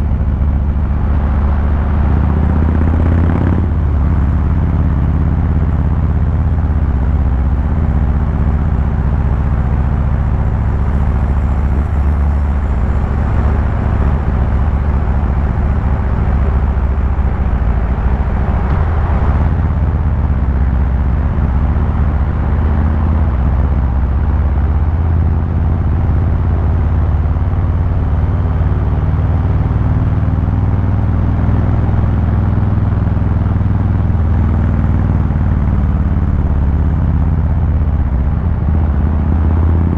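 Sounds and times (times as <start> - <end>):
motorcycle engine rumble: 0.0 - 39.9.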